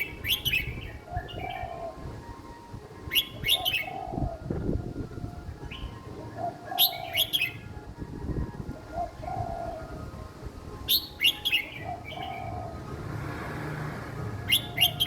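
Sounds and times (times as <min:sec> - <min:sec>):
bird whistled phrases: 0:00.0 - 0:02.0, 0:03.0 - 0:04.4, 0:05.6 - 0:07.8, 0:10.9 - 0:12.7, 0:14.4 - 0:15.0.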